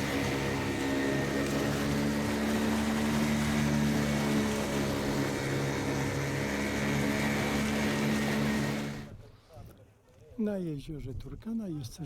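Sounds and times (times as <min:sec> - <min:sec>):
outboard engine droning: 0:00.0 - 0:09.2.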